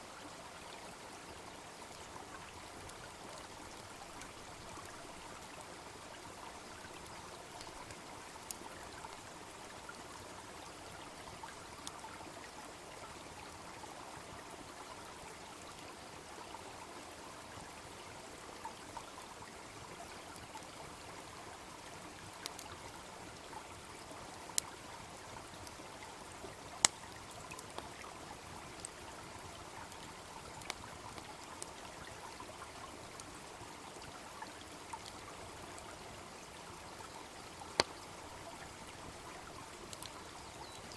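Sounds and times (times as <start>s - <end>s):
stream babbling: 0.0s - 40.9s
wood fire crackling: 26.6s - 31.7s, 37.5s - 40.3s.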